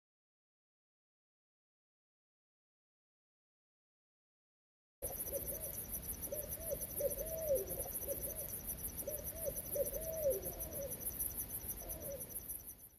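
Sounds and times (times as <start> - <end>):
owl hooting: 5.0 - 12.6.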